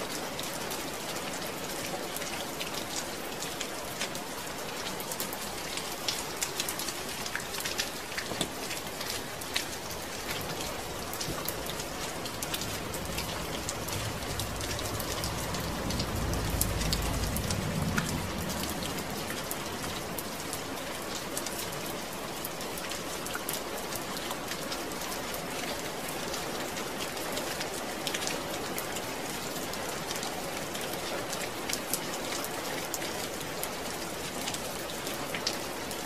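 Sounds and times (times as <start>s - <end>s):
rain falling: 0.0s - 36.0s
low rumble: 10.9s - 20.0s.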